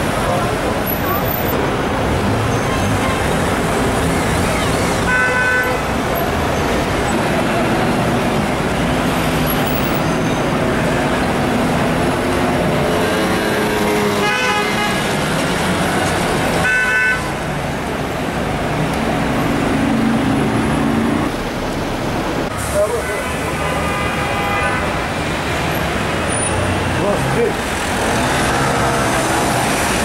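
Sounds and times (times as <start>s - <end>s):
city traffic noise: 0.0s - 30.0s
car horns: 5.0s - 6.0s, 13.8s - 15.2s, 16.6s - 17.4s, 22.9s - 25.2s.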